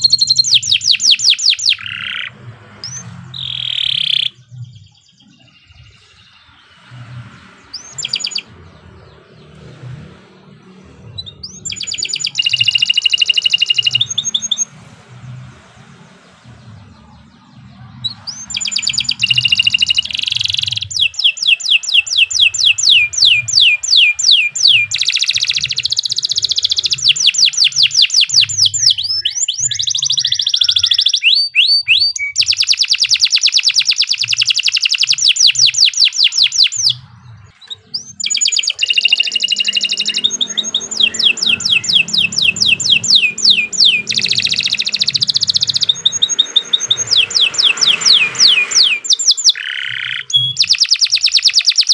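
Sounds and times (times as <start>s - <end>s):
canary singing fast trills: 0.0s - 51.9s.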